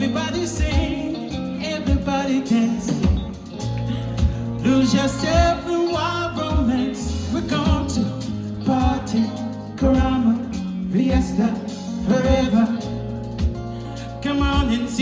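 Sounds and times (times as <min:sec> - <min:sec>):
steady drum beat: 0:00.0 - 0:13.7
bass: 0:00.0 - 0:15.0
person singing: 0:00.0 - 0:15.0.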